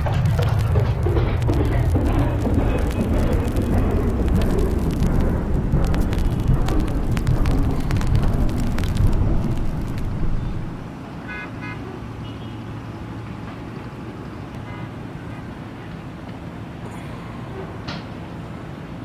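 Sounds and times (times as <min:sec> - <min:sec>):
road traffic rumble: 0:00.0 - 0:19.0
vehicle horn toots: 0:11.3 - 0:12.6.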